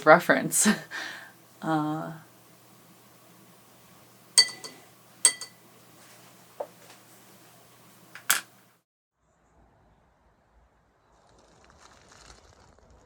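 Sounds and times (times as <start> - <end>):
glass clinking: 4.4 - 5.6.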